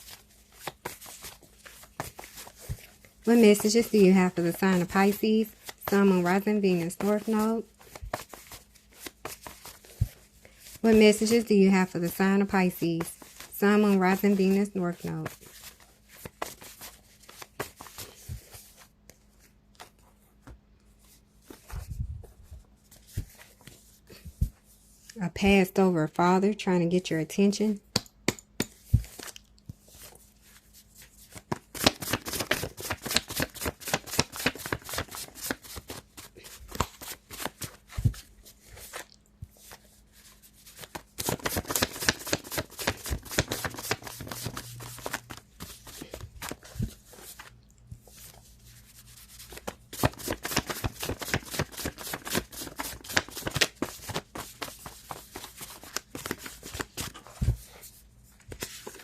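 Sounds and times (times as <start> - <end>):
cards shuffled by hand: 0.0 - 11.5, 28.5 - 59.0.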